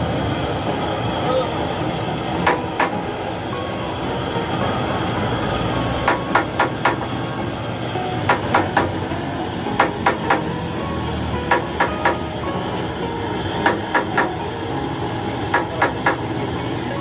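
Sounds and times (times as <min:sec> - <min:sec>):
steady background noise: 0:00.0 - 0:17.0
hammer tapping metal: 0:02.4 - 0:03.1, 0:06.0 - 0:07.2, 0:08.2 - 0:10.6, 0:11.4 - 0:12.4, 0:13.6 - 0:14.5, 0:15.5 - 0:16.4.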